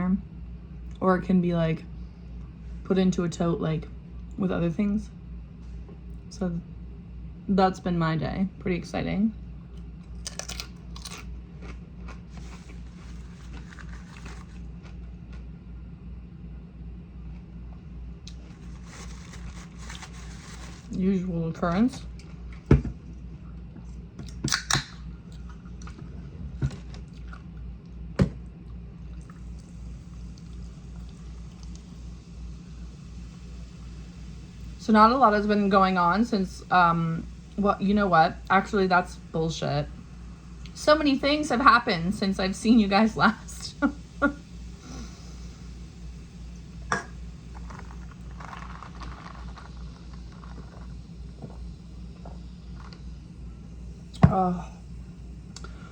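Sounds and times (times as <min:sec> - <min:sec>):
low hum: 0:00.0 - 0:55.9
chewing food: 0:09.7 - 0:15.5, 0:22.1 - 0:32.0
person chewing food: 0:09.8 - 0:15.4, 0:26.8 - 0:28.0.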